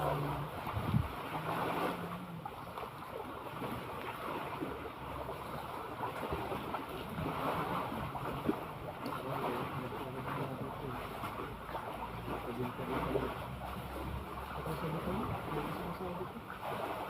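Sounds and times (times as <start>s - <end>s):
wind buffeting microphone: 0.0s - 2.0s
waves washing: 0.0s - 17.0s.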